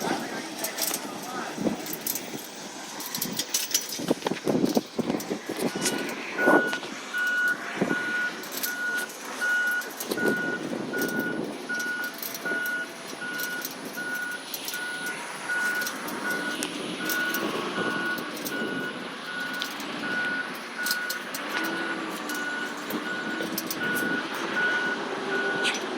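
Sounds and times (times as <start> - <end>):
truck engine running: 0.0 - 25.9
truck reverse alarm beeping: 5.6 - 25.9.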